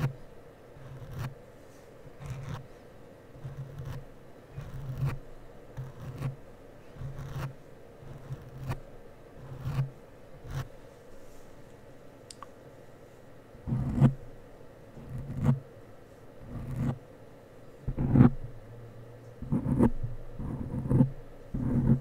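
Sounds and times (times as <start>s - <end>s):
brush rubbing on microphone: 3.4s - 5.2s, 5.8s - 6.4s.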